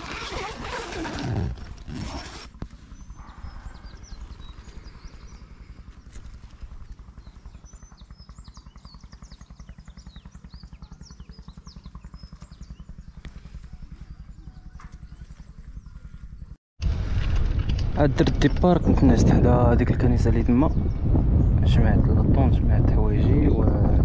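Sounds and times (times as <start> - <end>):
small birds chirping: 0.0 - 16.6
low rapidly pulsing throb: 2.8 - 24.0.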